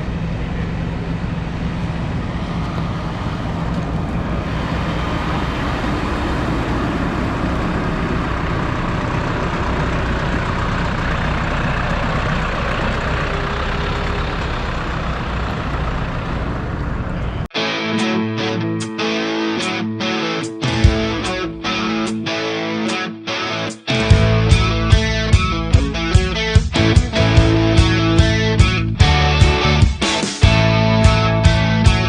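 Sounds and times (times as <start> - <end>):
tractor diesel engine droning: 0.0 - 17.5, 19.4 - 32.0
road noise: 0.0 - 17.6, 19.0 - 32.0.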